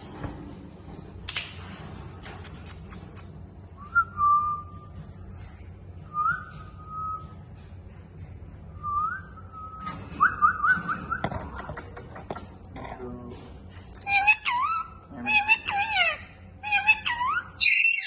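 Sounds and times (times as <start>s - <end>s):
parrot whistling: 14.0s - 18.0s.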